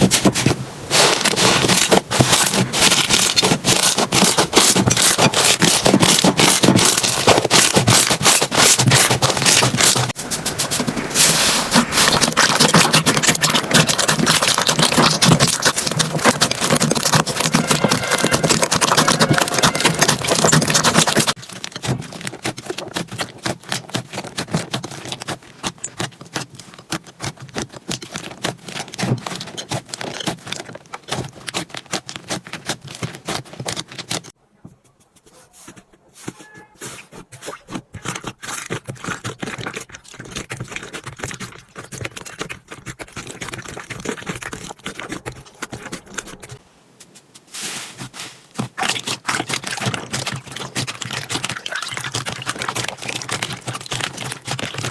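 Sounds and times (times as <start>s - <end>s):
slime crackling and popping: 0.0s - 10.2s, 11.2s - 34.2s, 48.6s - 54.9s.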